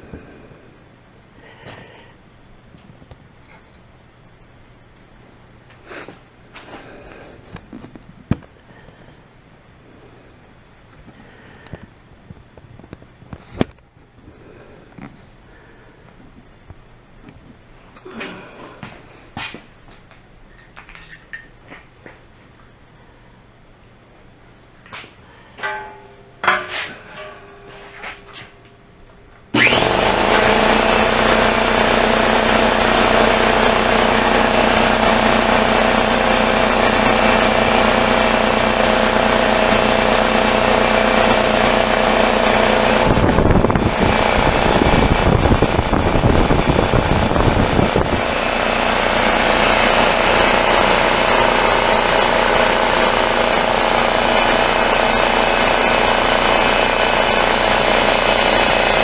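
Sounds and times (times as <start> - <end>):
air compressor chugging: 25.0 - 59.0.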